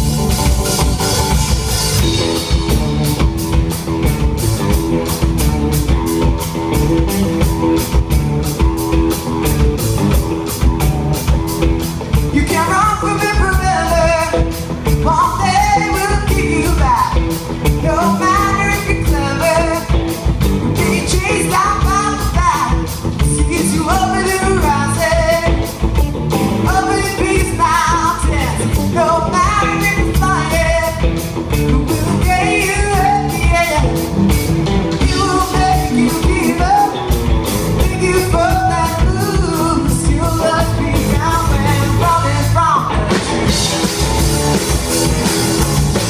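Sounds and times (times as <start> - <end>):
rock band playing live: 0.0 - 46.0
steady drum beat: 0.0 - 46.0
lead singer: 11.2 - 46.0.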